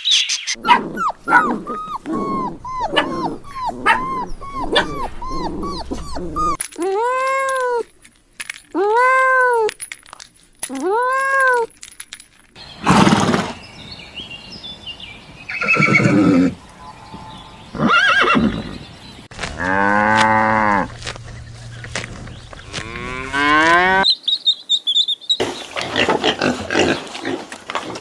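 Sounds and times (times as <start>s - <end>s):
horse calling and snorting: 0.6s - 6.6s, 12.7s - 13.6s, 15.5s - 20.9s
cow mooing: 15.5s - 18.9s, 22.8s - 24.0s.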